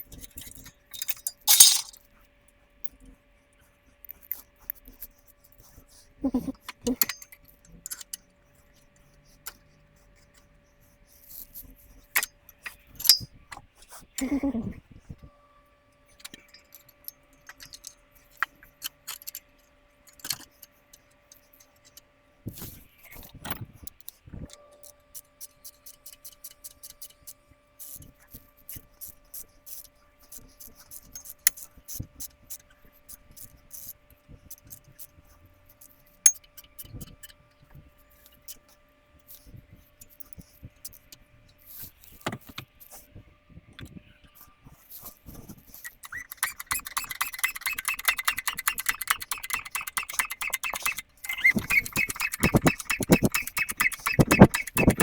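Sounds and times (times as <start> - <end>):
metallic clicks of hand tools: 0.9 - 2.0, 13.0 - 13.3, 45.8 - 55.0.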